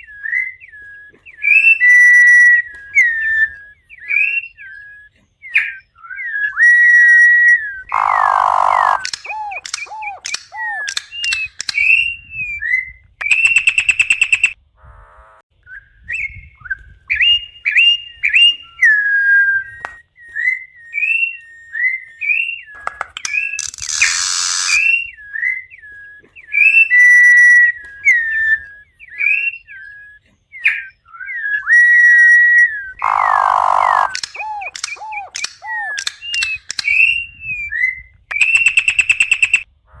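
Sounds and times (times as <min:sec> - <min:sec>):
bird whistling song: 0:00.0 - 0:14.6, 0:15.6 - 0:40.0
harsh buzzy bird notes: 0:06.6 - 0:15.4, 0:22.7 - 0:30.1, 0:31.8 - 0:37.2.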